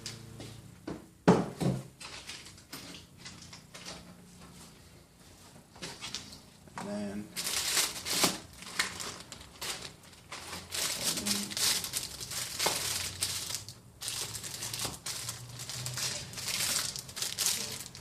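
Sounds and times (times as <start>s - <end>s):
packaging crinkling: 7.4s - 18.0s.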